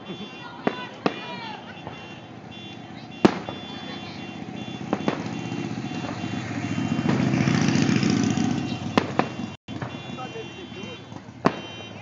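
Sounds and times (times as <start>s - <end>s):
firework shells bursting: 0.0s - 7.4s, 8.9s - 10.4s, 11.2s - 12.0s
fireworks rumbling and crackling: 0.0s - 12.0s.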